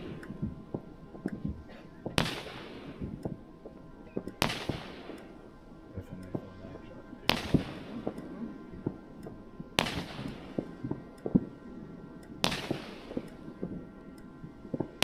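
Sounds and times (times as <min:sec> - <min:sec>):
small firework pops: 0:00.0 - 0:05.3, 0:07.3 - 0:11.6, 0:12.3 - 0:13.8
firework reports: 0:00.0 - 0:15.0
firework hiss: 0:01.6 - 0:03.8.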